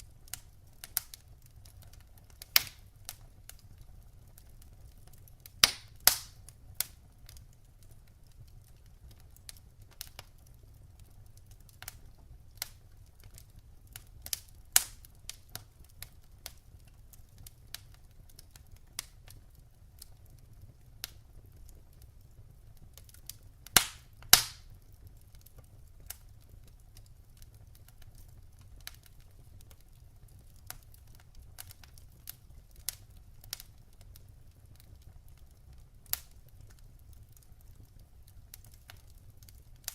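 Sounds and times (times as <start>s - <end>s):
log fire crackling: 0.0s - 39.9s
sharp pops and snaps: 0.3s - 3.7s, 4.4s - 10.4s, 12.6s - 17.0s, 22.9s - 24.8s.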